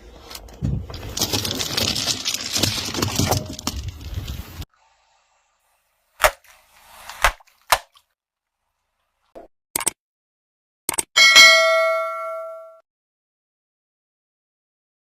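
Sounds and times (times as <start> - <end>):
metallic ding ringing: 11.2 - 12.8.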